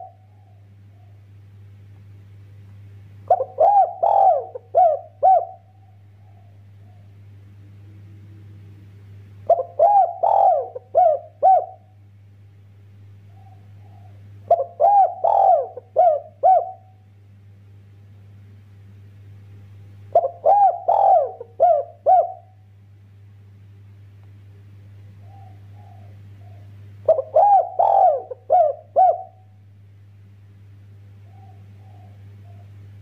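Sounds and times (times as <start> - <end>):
dove cooing: 0.0 - 1.2, 3.2 - 7.2, 9.4 - 12.0, 13.3 - 17.0, 20.1 - 22.6, 25.2 - 29.6, 31.2 - 33.0.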